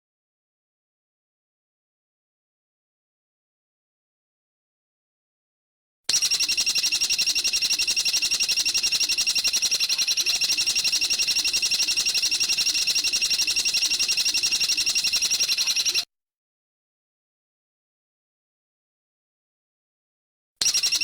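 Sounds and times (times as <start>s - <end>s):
bird rapid high trill: 6.1s - 16.0s.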